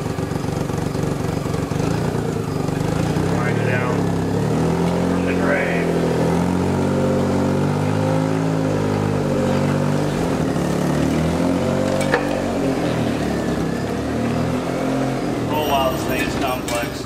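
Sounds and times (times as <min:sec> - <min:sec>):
engine running at low speed: 0:00.0 - 0:17.0
sharp metallic clank: 0:11.9 - 0:12.8.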